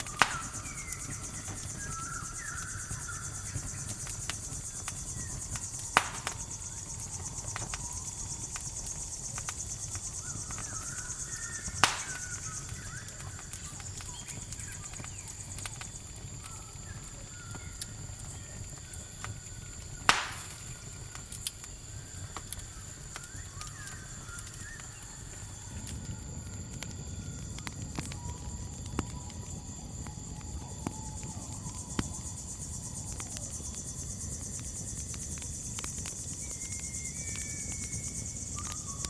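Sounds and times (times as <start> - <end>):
faint short chirping calls: 0.0 - 15.7
campfire crackling: 0.0 - 39.0
crickets chirring: 0.0 - 39.0
sharp fire pops: 0.0 - 39.0.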